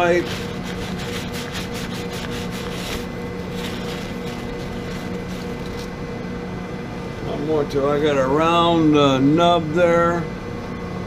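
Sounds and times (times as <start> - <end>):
cloth rubbing strokes: 0.0 - 6.0
lathe running with steady hum: 0.0 - 11.0.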